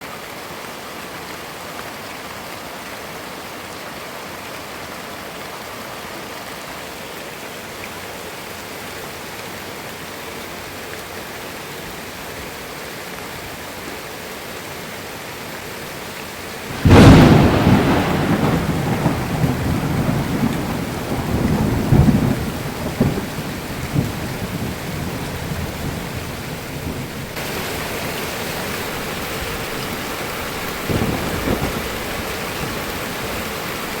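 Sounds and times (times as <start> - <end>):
steady rain falling: 0.0 - 34.0
thunderclap rumbling: 16.7 - 27.6, 29.8 - 33.9.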